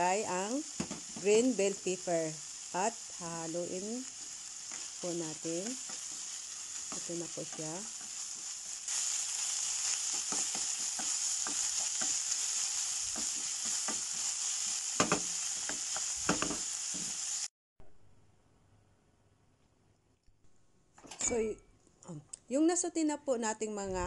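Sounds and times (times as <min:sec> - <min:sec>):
food sizzling in a frying pan: 0:00.0 - 0:17.5.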